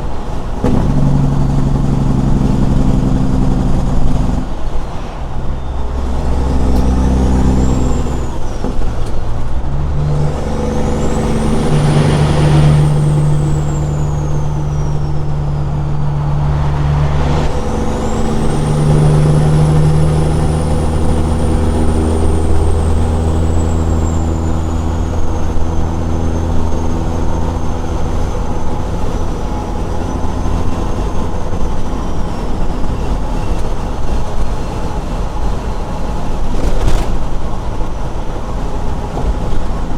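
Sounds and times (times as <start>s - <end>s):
diesel truck engine under load: 0.0s - 39.9s.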